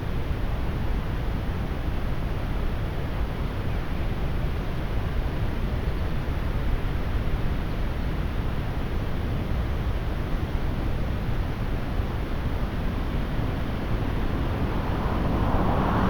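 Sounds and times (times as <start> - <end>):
wind buffeting microphone: 11.5 - 16.0.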